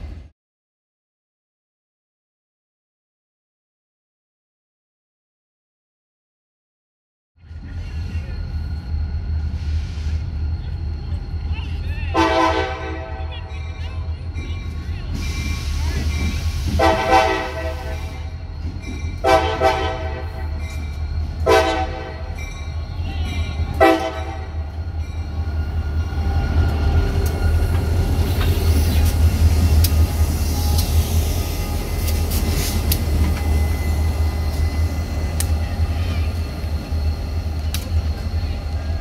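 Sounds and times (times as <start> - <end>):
diesel locomotive rumble: 7.4 - 39.0
locomotive horn blasts: 12.2 - 13.4, 16.8 - 18.3, 19.2 - 20.4, 21.4 - 22.4, 23.7 - 24.7
train wheels clicking: 20.2 - 39.0.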